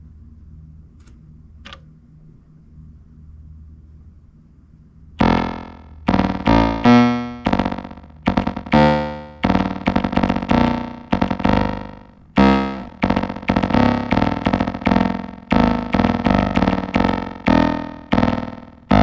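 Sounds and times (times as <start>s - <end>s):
sequenced synth bass line: 5.2s - 19.0s.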